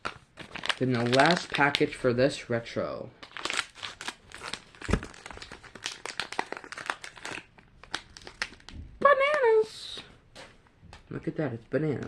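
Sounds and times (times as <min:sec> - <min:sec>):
plastic wrapper crinkling and tearing: 0:00.0 - 0:02.1, 0:03.2 - 0:08.8.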